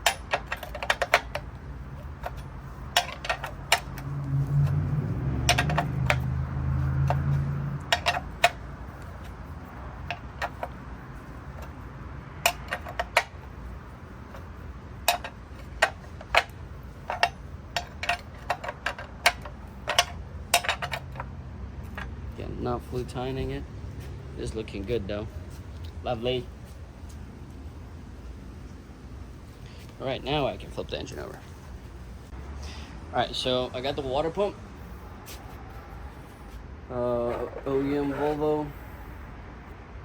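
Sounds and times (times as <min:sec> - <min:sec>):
hand wrench clicking: 0:00.0 - 0:09.4, 0:10.0 - 0:10.9, 0:12.4 - 0:13.5, 0:14.3 - 0:21.3.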